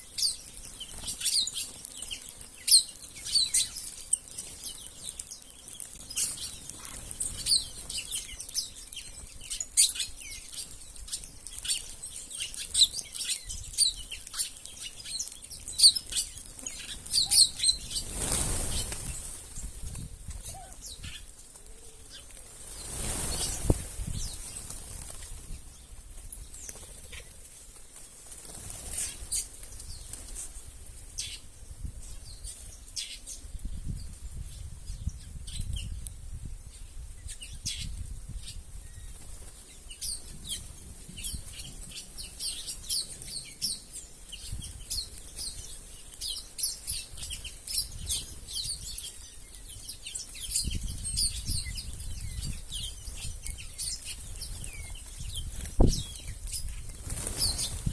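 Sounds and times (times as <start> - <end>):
small birds chirping: 0.0 - 57.9
fluttering wings: 0.1 - 31.4, 44.4 - 57.9.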